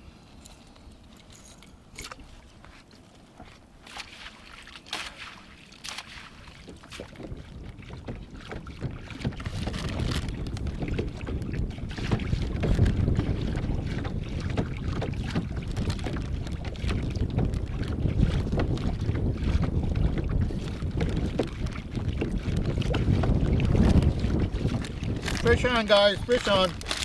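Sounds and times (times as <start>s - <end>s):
wind buffeting microphone: 6.4s - 27.0s.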